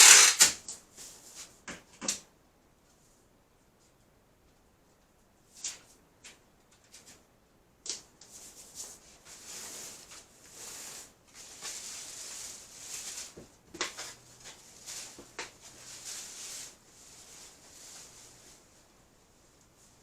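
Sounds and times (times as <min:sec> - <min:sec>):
dry rustling and shuffling: 0:08.2 - 0:20.0.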